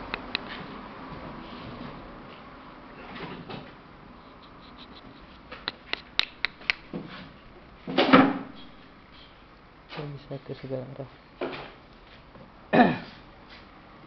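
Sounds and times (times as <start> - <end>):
sharp clicks: 0.0 - 0.5, 4.7 - 6.9.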